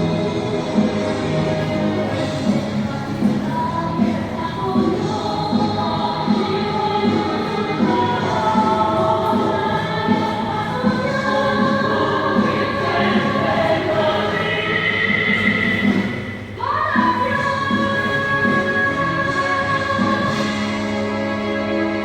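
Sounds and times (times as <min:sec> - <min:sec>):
choir singing: 0:05.4 - 0:17.0.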